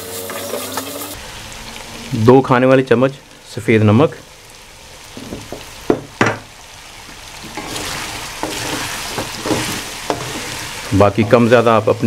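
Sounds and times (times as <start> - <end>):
chicken frying in oil: 0.0 - 12.0
wooden spatula scraping pan: 7.4 - 11.8.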